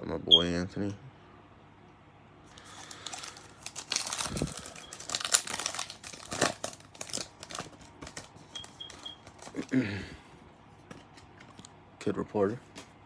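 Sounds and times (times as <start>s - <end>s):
plastic wrapper crinkling: 2.5s - 9.7s.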